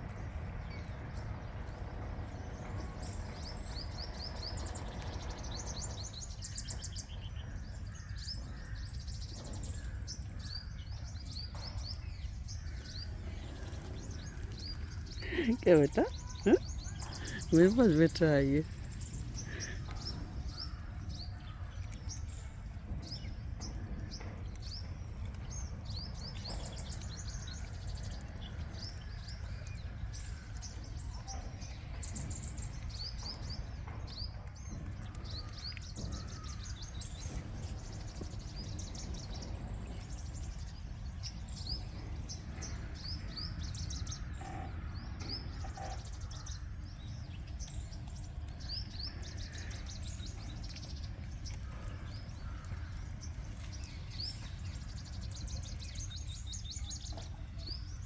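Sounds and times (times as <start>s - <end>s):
low background rumble: 0.0s - 28.0s
small birds chirping: 0.0s - 58.0s.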